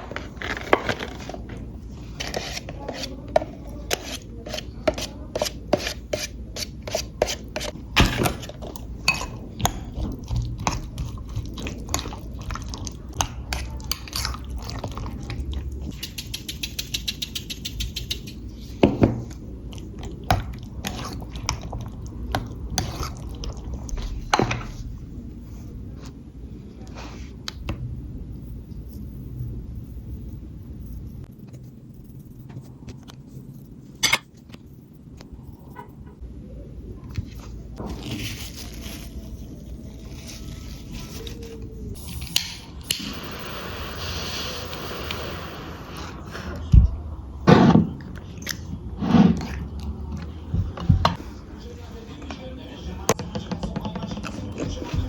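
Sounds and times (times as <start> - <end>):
cutlery and dishes clinking: 34.0 - 34.4
dishes scraping and rattling: 34.0 - 34.4.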